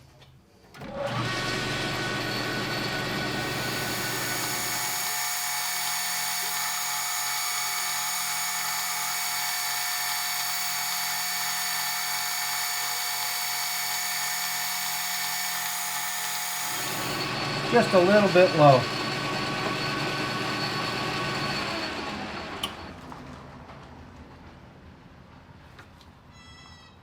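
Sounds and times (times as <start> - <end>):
metal lathe whining: 0.8 - 23.0.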